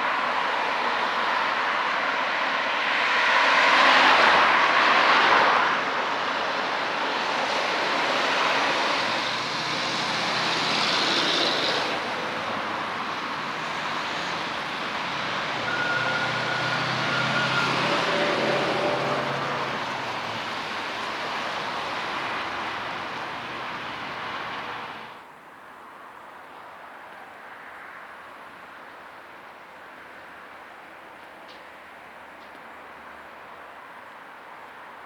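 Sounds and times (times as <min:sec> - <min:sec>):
street traffic noise: 0:00.0 - 0:35.0
vehicle passing close: 0:07.3 - 0:25.2.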